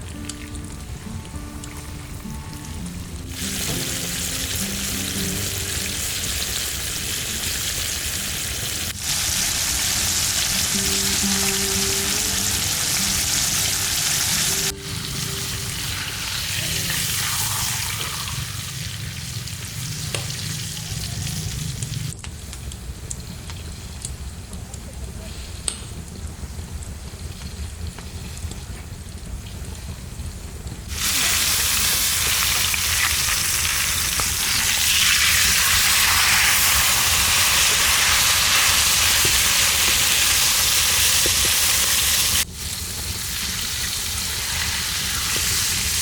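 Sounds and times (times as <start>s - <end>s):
soft background music: 0.0s - 18.4s
fish sizzling in hot oil: 1.7s - 20.8s, 30.9s - 46.0s.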